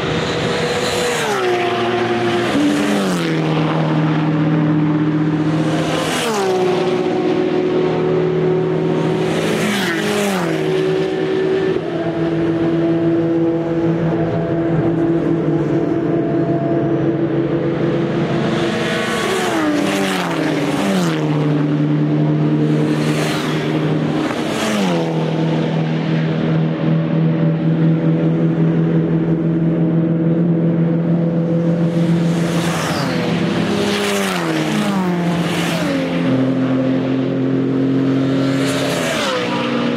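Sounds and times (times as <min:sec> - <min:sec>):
racing cars passing at speed: 0:00.0 - 0:39.9.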